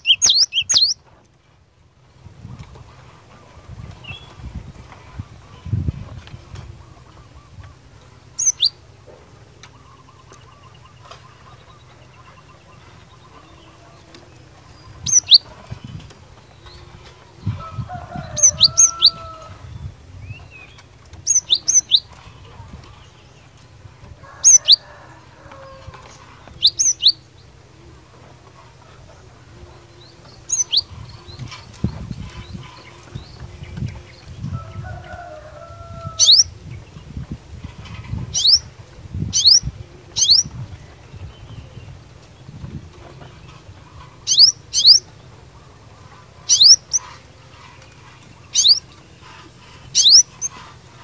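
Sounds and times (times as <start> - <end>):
bird sharp high calls: 0.0 - 1.0, 8.4 - 8.8, 14.6 - 15.5, 18.2 - 19.5, 21.2 - 22.2, 24.4 - 24.8, 26.2 - 27.2, 30.4 - 31.6, 36.1 - 36.5, 38.3 - 38.7, 39.3 - 40.5, 44.2 - 45.1, 46.1 - 47.2, 48.4 - 50.8.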